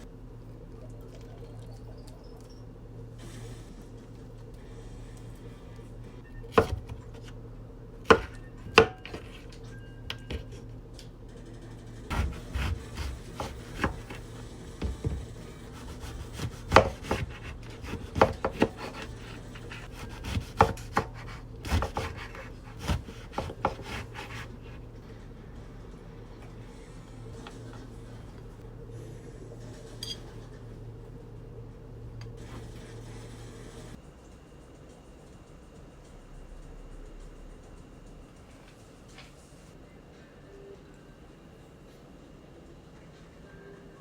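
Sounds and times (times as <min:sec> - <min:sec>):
steady low hum: 0:00.0 - 0:44.0
knife chopping on wooden board: 0:06.5 - 0:07.0, 0:08.1 - 0:09.4, 0:12.1 - 0:14.2, 0:14.8 - 0:24.7.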